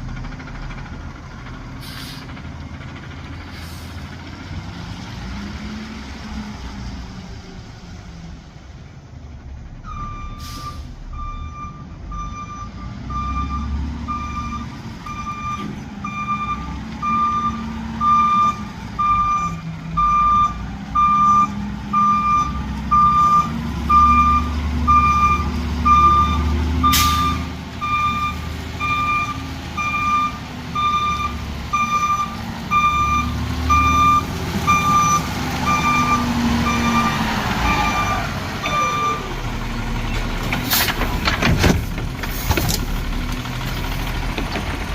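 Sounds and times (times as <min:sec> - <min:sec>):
diesel engine rumble: 0:00.0 - 0:44.9
reversing alarm beeps: 0:09.9 - 0:39.3.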